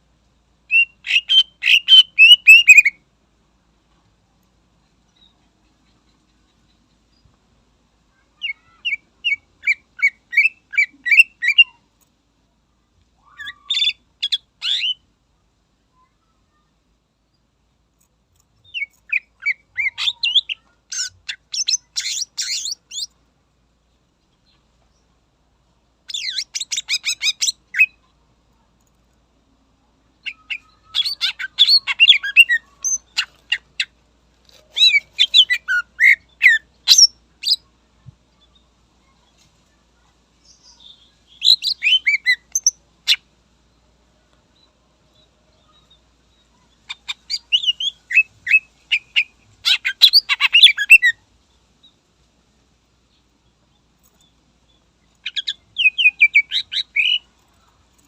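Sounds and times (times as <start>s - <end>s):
bird chirping and whistling: 0.7s - 2.9s.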